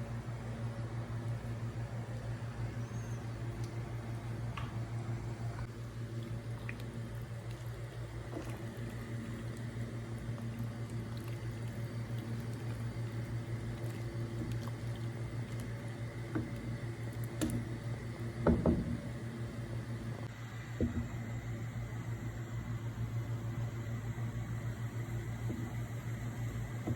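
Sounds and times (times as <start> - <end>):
steady low hum: 0.0 - 26.9
milk bubbling in a pot: 2.7 - 20.2.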